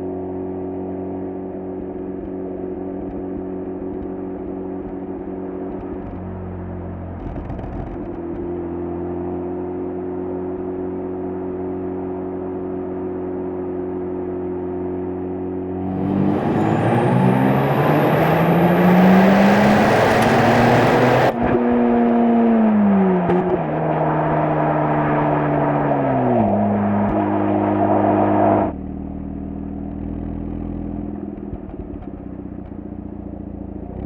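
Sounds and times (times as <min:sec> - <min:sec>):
rotary engine exhaust revving: 0:15.8 - 0:28.8.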